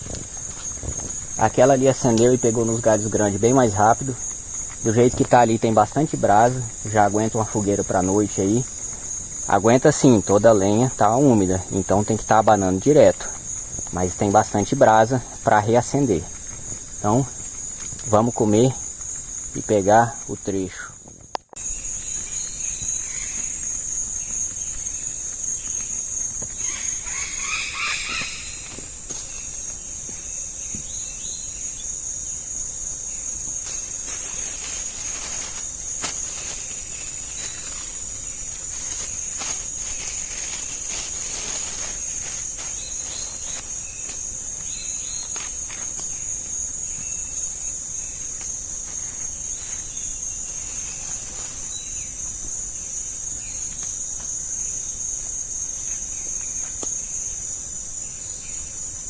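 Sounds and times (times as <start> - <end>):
insects chorus: 0.0 - 59.0
rustling and handling noises: 33.5 - 47.6, 48.2 - 52.6.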